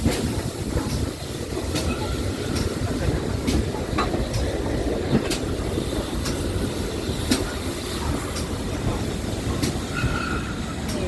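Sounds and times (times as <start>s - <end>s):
train rumbling: 0.0s - 11.0s
wheels clicking over rail joints: 0.0s - 11.0s.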